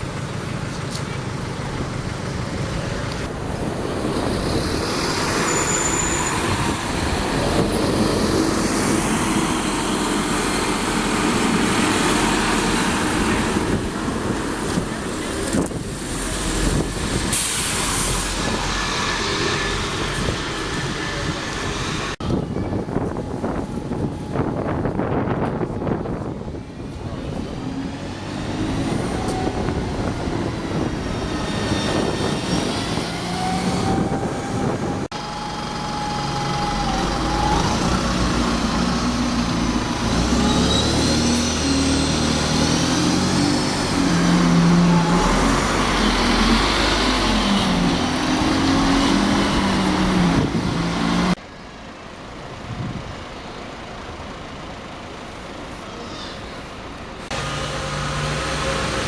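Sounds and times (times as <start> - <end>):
diesel buses accelerating: 0.0 - 59.0.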